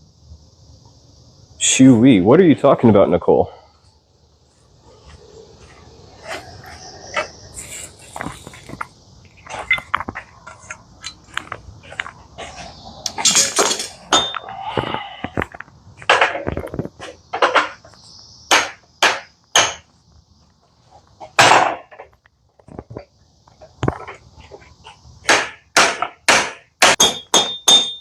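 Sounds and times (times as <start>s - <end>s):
steady high hiss: 0.0s - 28.0s
scraping: 4.8s - 17.9s
knocks and clatters: 13.1s - 17.9s.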